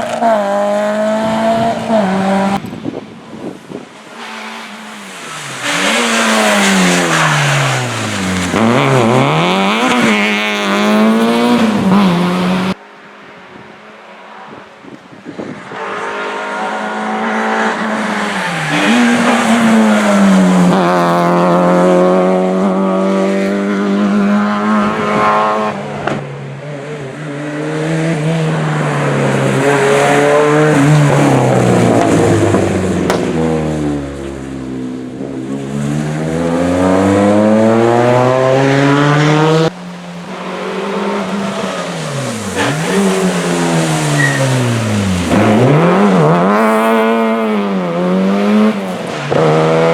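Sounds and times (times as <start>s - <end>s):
rally car engines revving: 0.0s - 49.9s
tyre squeal: 4.1s - 10.2s, 40.5s - 45.8s.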